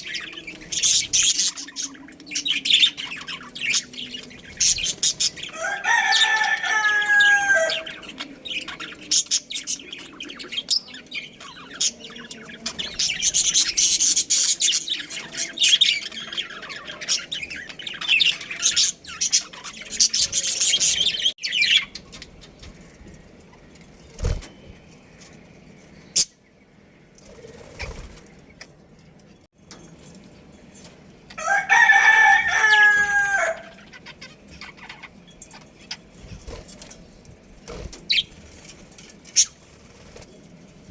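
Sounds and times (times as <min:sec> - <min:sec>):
budgies chattering: 0:00.0 - 0:22.7, 0:32.0 - 0:36.9, 0:37.6 - 0:38.6
rooster crowing: 0:05.4 - 0:08.0, 0:31.3 - 0:33.8.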